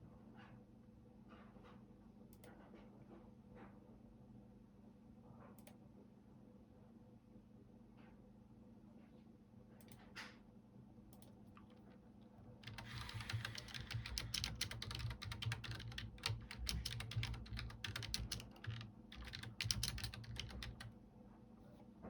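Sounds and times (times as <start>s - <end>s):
typing on keyboard: 12.5s - 21.0s.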